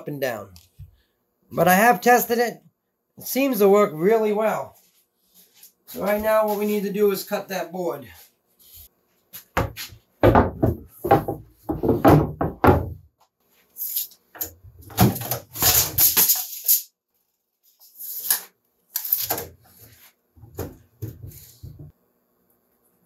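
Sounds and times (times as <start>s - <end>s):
wooden boards knocking and scraping: 9.5s - 13.1s.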